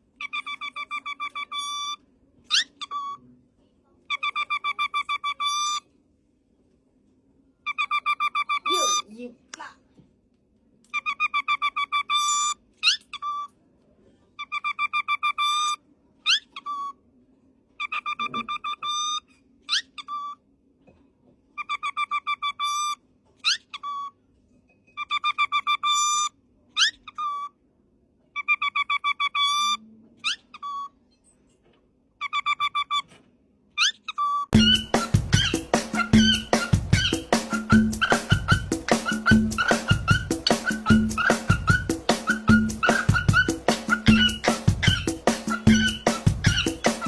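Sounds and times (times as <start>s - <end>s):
parrot whistling: 34.6s - 47.0s.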